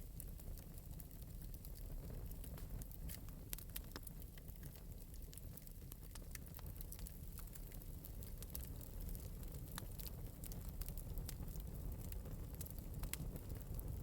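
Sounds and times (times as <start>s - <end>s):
fire crackling and popping: 0.0s - 14.0s
flame rumble: 0.0s - 14.0s.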